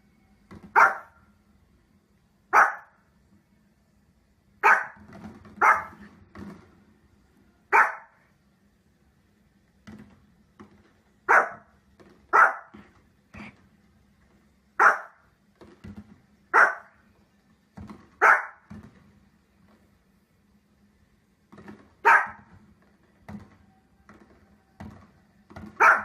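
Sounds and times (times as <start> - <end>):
dog barking: 0.7 - 1.2, 2.5 - 3.0, 4.6 - 5.0, 5.6 - 6.0, 7.7 - 8.2, 11.3 - 11.7, 12.3 - 12.8, 14.8 - 15.2, 16.5 - 17.0, 18.2 - 18.7, 22.0 - 22.5, 25.7 - 26.0.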